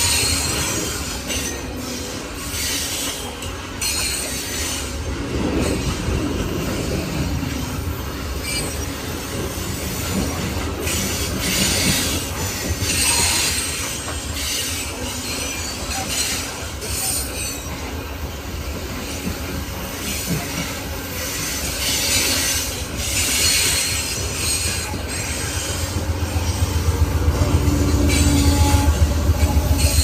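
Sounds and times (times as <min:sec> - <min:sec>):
train wheels rumbling on rail: 0:00.0 - 0:30.0
wheel screech: 0:10.9 - 0:17.7.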